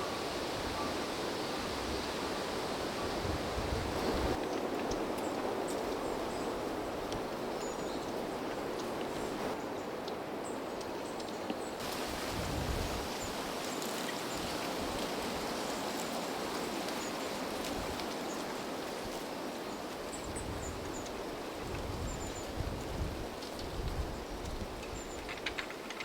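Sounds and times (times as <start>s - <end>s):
wind blowing through trees: 0.0s - 26.0s
wind buffeting microphone: 11.8s - 13.6s, 20.2s - 25.7s.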